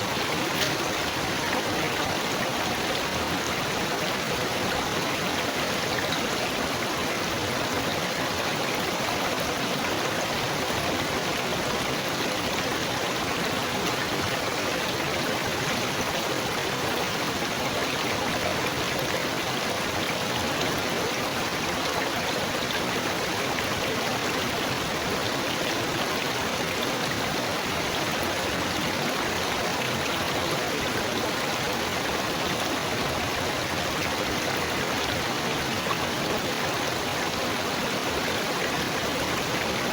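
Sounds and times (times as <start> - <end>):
babbling water: 0.3 - 6.6.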